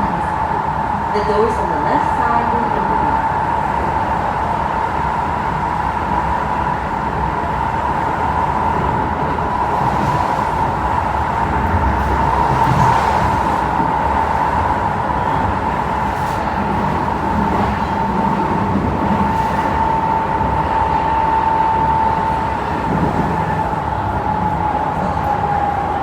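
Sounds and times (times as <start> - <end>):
train interior running noise: 0.0 - 26.0.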